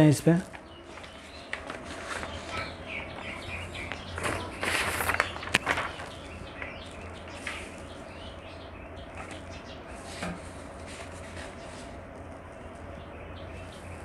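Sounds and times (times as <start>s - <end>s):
steady low hum: 0.0s - 14.0s
faint bird chirps: 0.5s - 10.1s.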